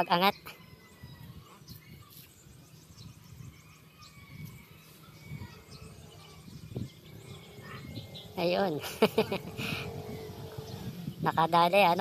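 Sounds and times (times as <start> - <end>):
faint birds chirping: 0.0 - 12.0
low rumble: 5.9 - 12.0.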